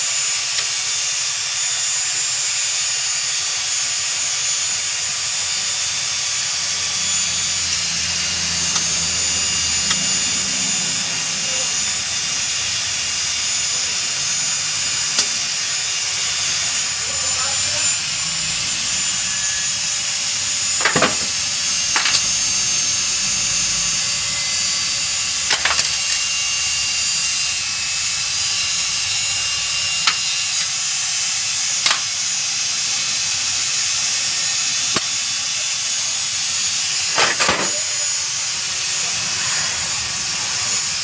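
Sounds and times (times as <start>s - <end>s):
sharp clicks and knocks: 20.8s - 22.3s, 31.8s - 32.2s.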